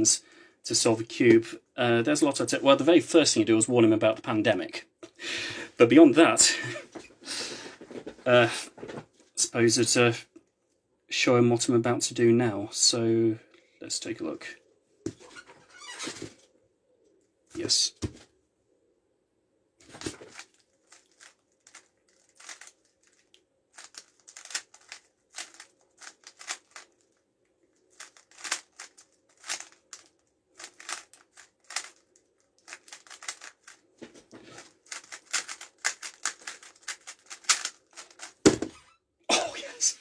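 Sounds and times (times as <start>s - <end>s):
puzzle cube layers clicking: 23.8s - 26.9s, 28.0s - 32.0s, 32.6s - 33.8s, 34.6s - 38.4s.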